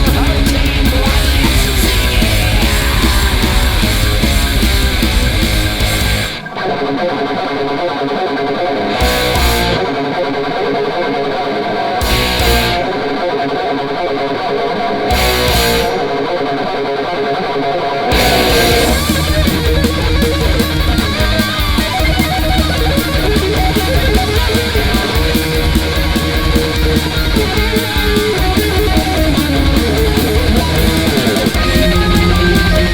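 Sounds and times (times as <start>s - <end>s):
drum and cymbal hits: 0.0s - 6.4s, 18.1s - 32.9s
electric guitar riffing: 0.0s - 32.9s
metal band with fast drumming: 0.0s - 32.9s.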